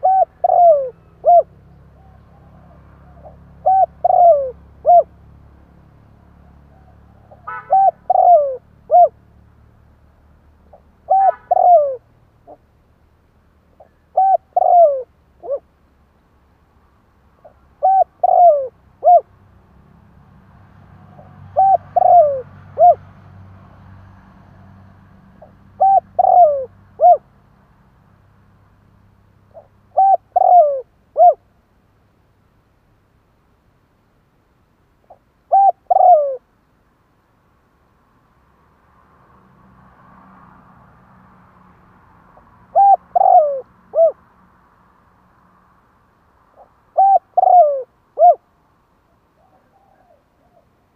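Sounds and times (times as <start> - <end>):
dove cooing: 0.0 - 5.1, 6.7 - 9.2, 10.7 - 12.6, 13.8 - 15.7, 17.4 - 19.3, 21.1 - 23.0, 25.4 - 27.3, 29.5 - 31.4, 35.1 - 36.5, 42.7 - 44.2, 46.6 - 48.4, 49.4 - 50.8.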